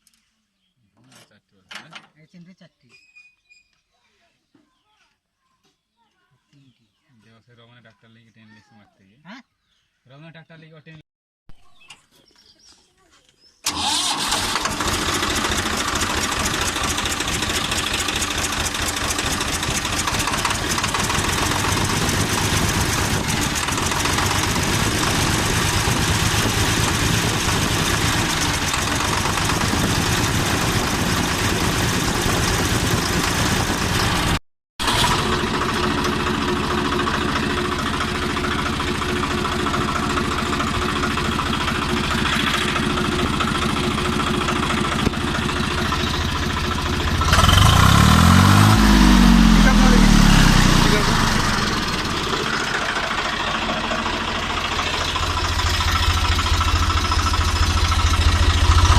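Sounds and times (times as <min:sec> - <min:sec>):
diesel tractor engine idling: 0:13.6 - 0:58.9.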